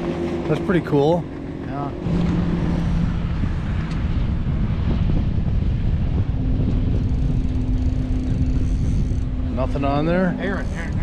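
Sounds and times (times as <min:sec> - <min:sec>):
engine droning: 0:00.0 - 0:11.0
wind buffeting microphone: 0:00.0 - 0:11.0.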